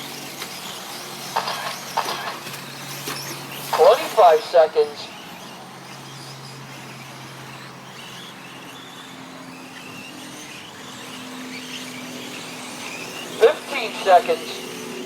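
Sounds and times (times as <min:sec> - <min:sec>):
rc truck electric motors whining: 0:00.0 - 0:15.0
steady hum and wash of noise: 0:12.4 - 0:15.0.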